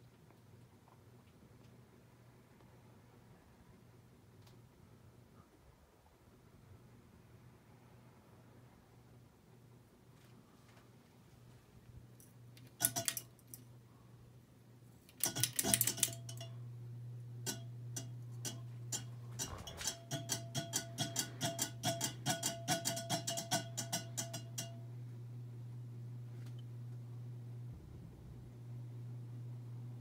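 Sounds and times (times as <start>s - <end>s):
ceiling fan motor humming: 10.4s - 30.0s.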